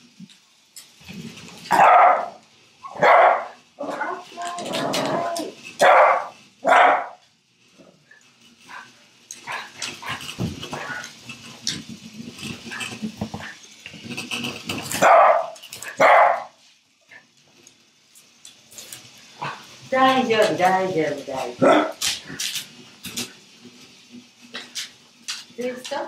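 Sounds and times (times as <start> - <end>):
dog barking: 1.7 - 3.6, 5.8 - 7.2, 15.0 - 16.6, 21.6 - 22.0.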